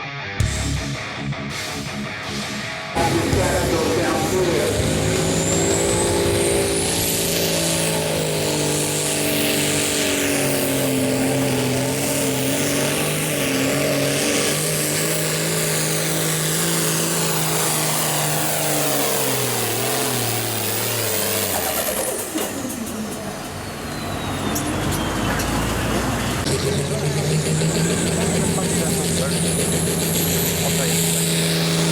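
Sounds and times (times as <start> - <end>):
diesel tractor engine at full throttle: 0.0 - 31.9
turbo whistle winding down: 3.0 - 13.9.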